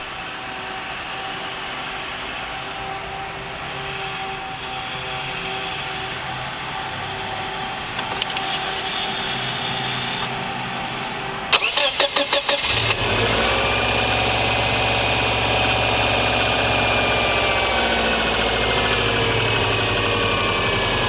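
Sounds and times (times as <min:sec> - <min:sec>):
engine cranking and starting: 0:07.9 - 0:10.3, 0:11.5 - 0:21.0.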